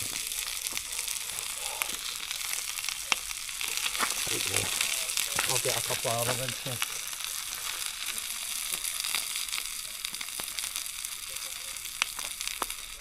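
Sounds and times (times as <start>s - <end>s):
meat sizzling in a pan: 0.0s - 13.0s.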